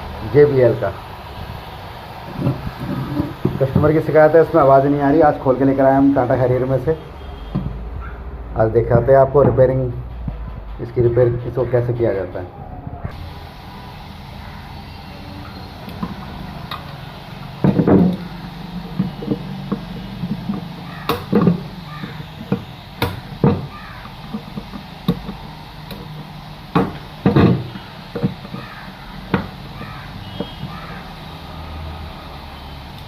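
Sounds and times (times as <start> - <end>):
steady low hum: 9.7 - 33.0
tools clicking and knocking: 18.8 - 28.6.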